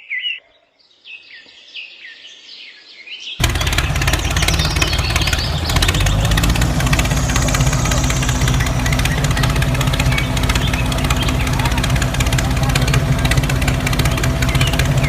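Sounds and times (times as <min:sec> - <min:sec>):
motor running with fast rattle: 0:03.4 - 0:15.0.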